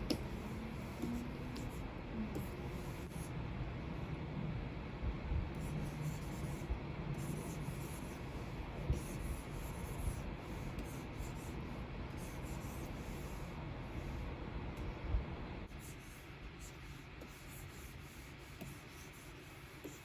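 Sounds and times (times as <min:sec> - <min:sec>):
stylus scratching on screen: 0:00.1 - 0:03.3, 0:05.6 - 0:13.6, 0:15.7 - 0:20.0.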